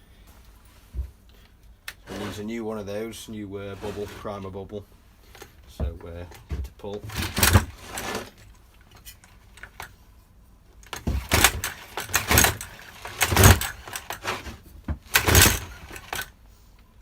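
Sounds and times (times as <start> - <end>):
recoil starter cord pulled: 7.1 - 8.5, 10.8 - 16.3.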